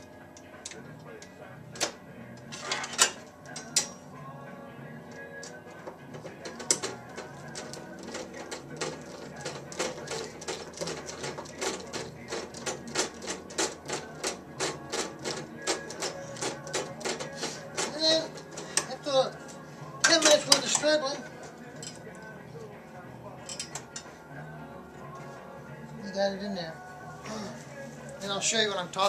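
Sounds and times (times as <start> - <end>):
screwdriver clicking in metal box: 5.4 - 19.0.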